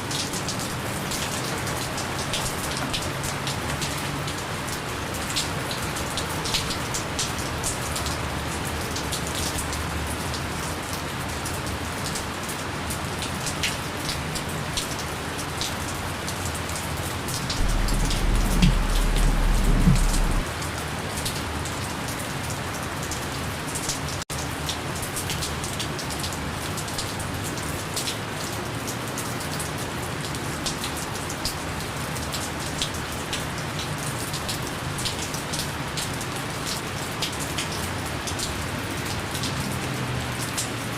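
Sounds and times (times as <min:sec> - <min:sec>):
rain drops pattering: 0:00.0 - 0:40.9
low rumble: 0:17.6 - 0:20.5.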